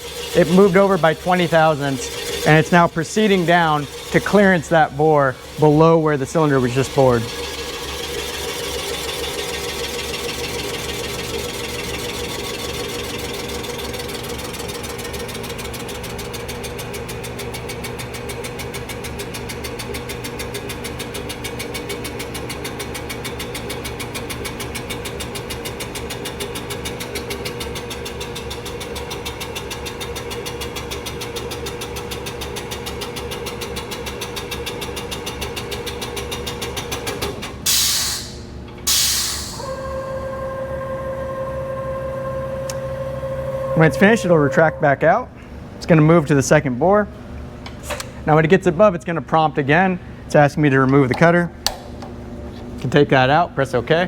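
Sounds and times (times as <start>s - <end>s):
boring machine hum and chatter: 0.0s - 54.0s
short loud hiss: 37.7s - 39.6s.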